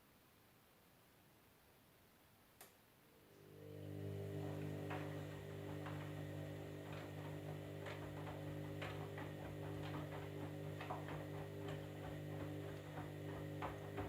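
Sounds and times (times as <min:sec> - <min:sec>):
washing machine motor hum: 0:03.1 - 0:14.0.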